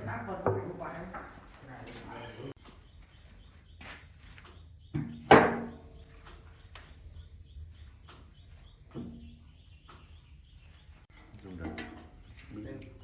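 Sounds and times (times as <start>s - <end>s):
objects knocking: 11.2s - 12.2s.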